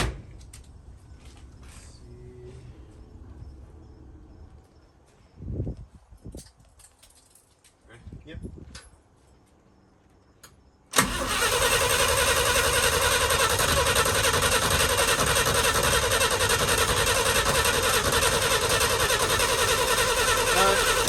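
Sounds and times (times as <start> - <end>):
starter cranking engine: 10.9 - 21.0.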